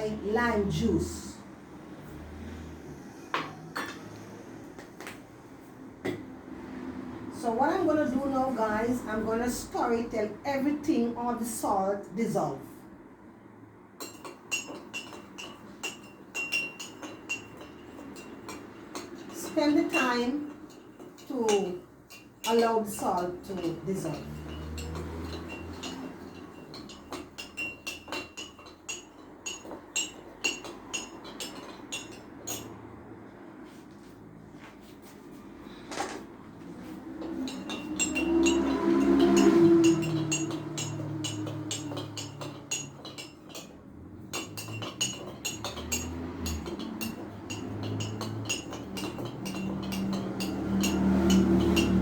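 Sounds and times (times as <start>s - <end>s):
spoon clinking against cup: 14.0s - 32.8s, 37.2s - 52.0s.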